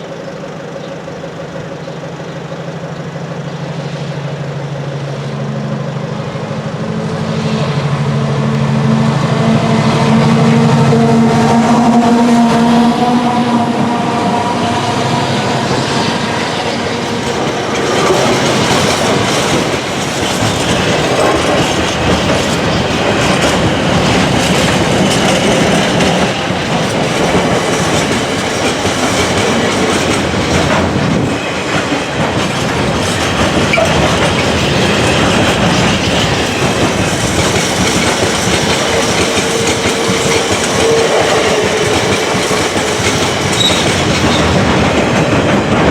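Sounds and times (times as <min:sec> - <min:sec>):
train wheels clattering on rails: 0:00.0 - 0:45.9.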